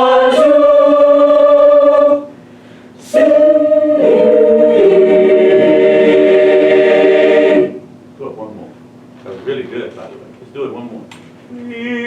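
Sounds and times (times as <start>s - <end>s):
choir singing a cappella: 0.0s - 2.4s, 3.0s - 7.9s.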